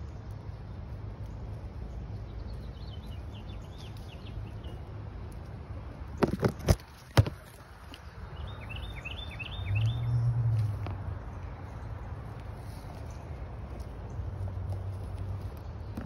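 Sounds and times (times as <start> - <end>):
low outdoor hum: 0.0 - 16.0
songbird chirping: 0.0 - 16.0.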